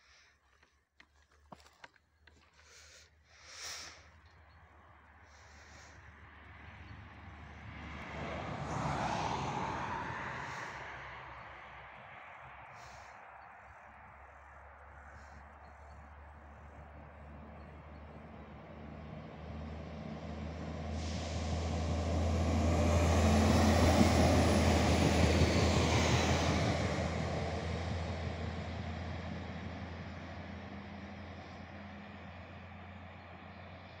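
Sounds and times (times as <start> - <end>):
train engine hum: 2.1 - 34.0
wheels on rails: 10.3 - 34.0.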